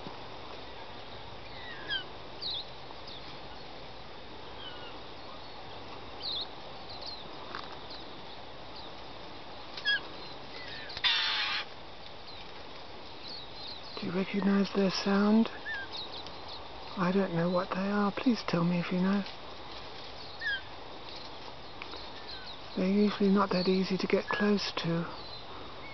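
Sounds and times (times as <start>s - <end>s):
birds chirping and whistling: 1.4s - 3.3s, 15.6s - 16.7s, 20.2s - 23.8s
harsh bird screech: 10.7s - 11.7s.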